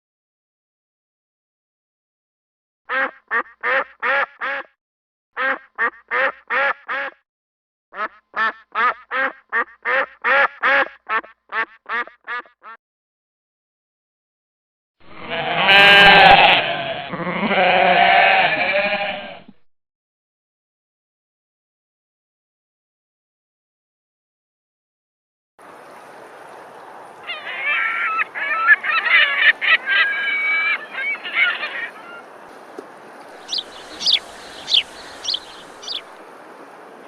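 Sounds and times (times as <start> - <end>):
duck quacking: 2.9 - 4.7, 5.4 - 7.2, 8.0 - 12.8, 33.4 - 36.2
wavering animal call: 27.2 - 32.3, 33.4 - 36.2.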